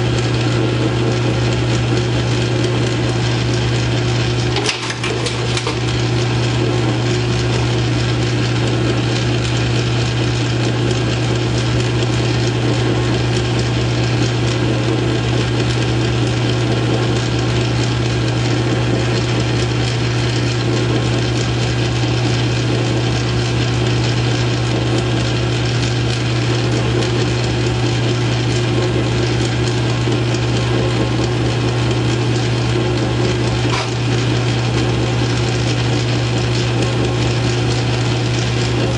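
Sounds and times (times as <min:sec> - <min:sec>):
lathe cutting steel: 0:00.0 - 0:14.5, 0:25.4 - 0:38.9
lathe motor hum: 0:00.0 - 0:38.9.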